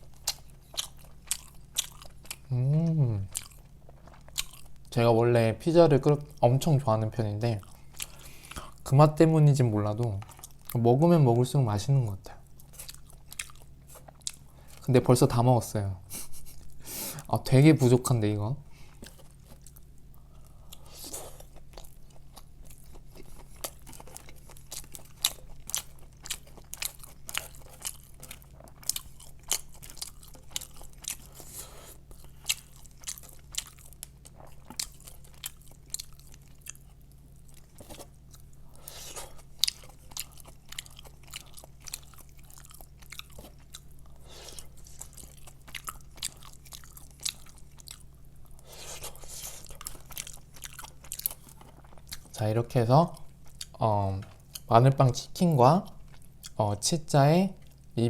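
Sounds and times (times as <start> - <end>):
crunching fried chicken: 0.0 - 5.1, 19.0 - 58.0
low steady hum: 0.0 - 58.0.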